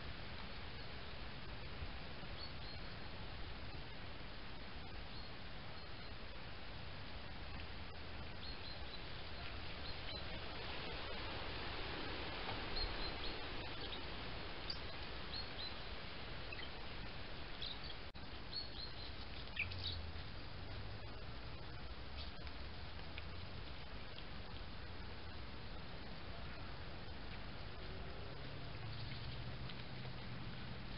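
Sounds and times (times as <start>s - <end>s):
microphone hiss: 0.0s - 30.9s
high bird chirps: 17.6s - 20.0s.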